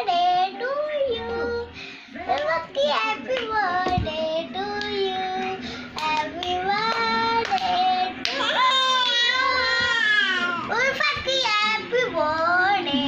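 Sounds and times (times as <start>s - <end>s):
child singing in high voice: 0.0s - 1.7s, 2.3s - 13.0s
hand claps: 2.3s - 4.0s, 6.0s - 9.2s.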